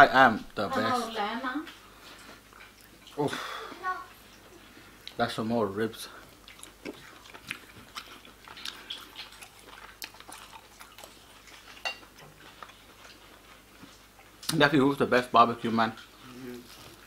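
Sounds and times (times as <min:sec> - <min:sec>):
man chewing: 0:01.9 - 0:03.2, 0:06.1 - 0:14.5, 0:16.0 - 0:17.0.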